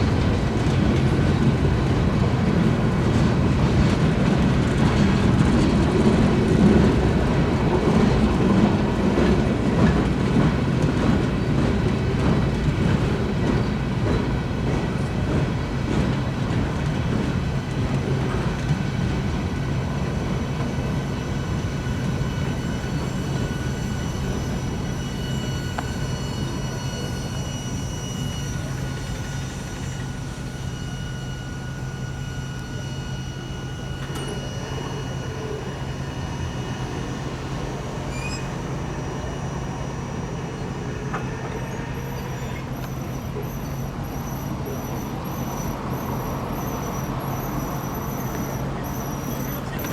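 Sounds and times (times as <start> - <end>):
train wheels clacking on rails: 0.0 - 49.9
faint wheel squeal: 16.7 - 49.9.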